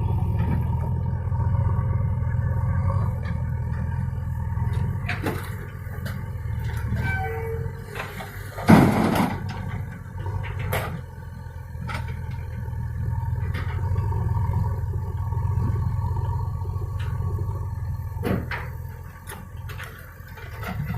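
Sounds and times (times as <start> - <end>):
diesel engine running: 0.0 - 20.9
metal clanks and knocks: 3.0 - 11.1, 11.8 - 12.7, 13.3 - 14.2, 18.1 - 20.9.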